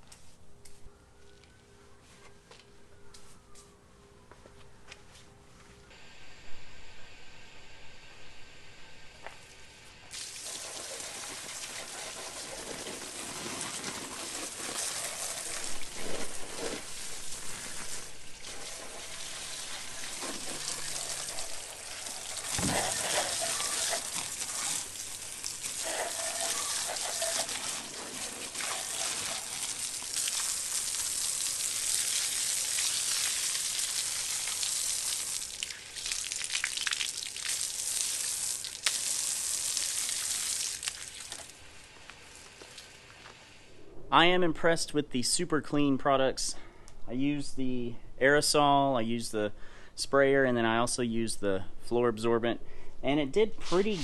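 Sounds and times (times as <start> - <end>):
liquid spray hiss: 10.1 - 41.5.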